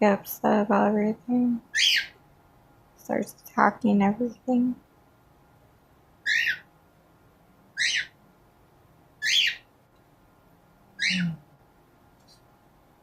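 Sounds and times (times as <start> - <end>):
cockatiel calling: 1.7 - 2.2, 6.2 - 6.7, 7.8 - 8.2, 9.2 - 9.7, 11.0 - 11.4.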